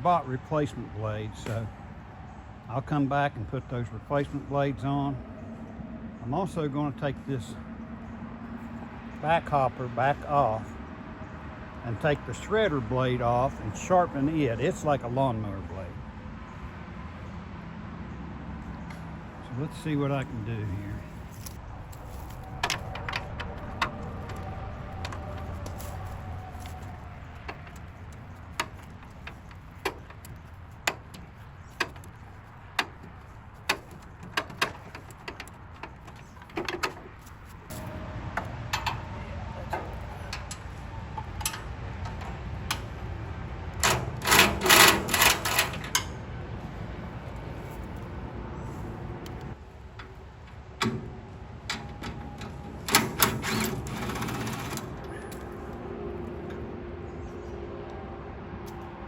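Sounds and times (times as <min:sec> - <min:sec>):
hand tools clinking on metal: 0:20.6 - 0:43.0, 0:43.8 - 0:46.2.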